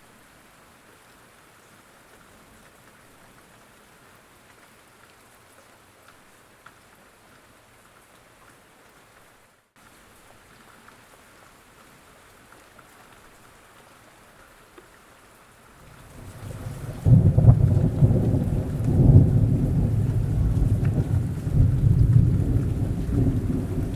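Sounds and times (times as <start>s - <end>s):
steady rain falling: 0.0s - 23.9s
single raindrops ticking: 15.8s - 23.9s
low rumble of thunder: 15.9s - 23.9s.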